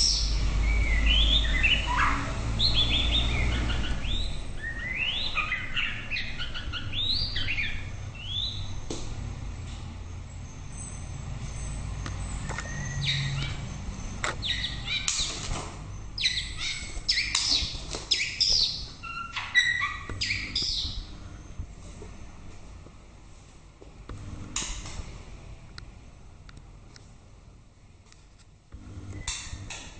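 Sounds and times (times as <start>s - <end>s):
bird singing whistled phrases: 0.0s - 8.7s, 14.4s - 15.3s, 16.2s - 21.0s.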